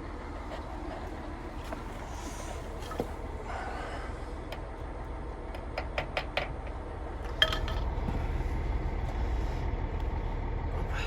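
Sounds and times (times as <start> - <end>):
low rumble: 6.8 - 11.0.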